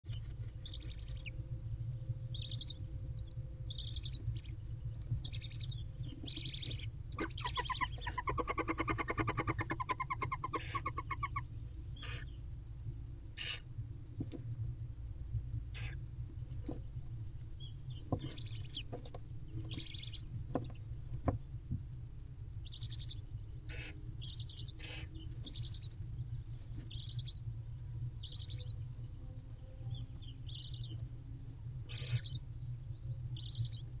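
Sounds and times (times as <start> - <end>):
steady low hum: 0.0 - 34.0
high bird chirps: 5.2 - 12.6, 17.6 - 18.9, 19.6 - 20.8
short raspy bird calls: 6.6 - 11.4, 12.0 - 12.4, 13.4 - 13.6, 15.7 - 16.0, 23.7 - 25.5, 31.9 - 32.4.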